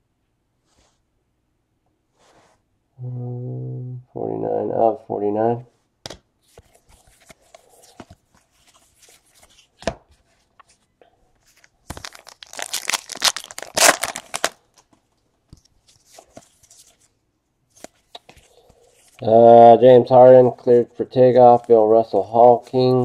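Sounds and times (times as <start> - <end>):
cards and wrappers clicking: 11.5 - 14.9
foil wrapper tearing and crinkling: 11.6 - 14.9.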